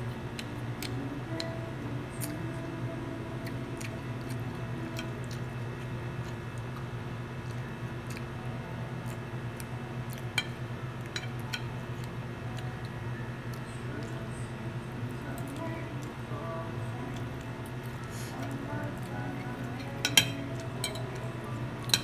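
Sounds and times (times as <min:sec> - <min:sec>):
steady low hum: 0:00.0 - 0:22.0
person chewing food: 0:00.4 - 0:02.6, 0:03.2 - 0:14.3.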